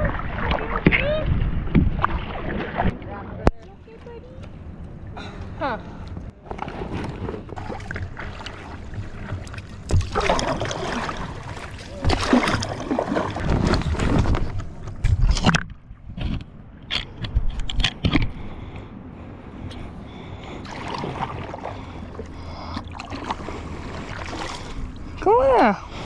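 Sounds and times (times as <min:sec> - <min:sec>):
water sloshing against paddleboard: 0:00.0 - 0:03.2, 0:06.1 - 0:18.5, 0:20.6 - 0:26.0
paddle strokes: 0:06.4 - 0:15.6, 0:20.6 - 0:25.3.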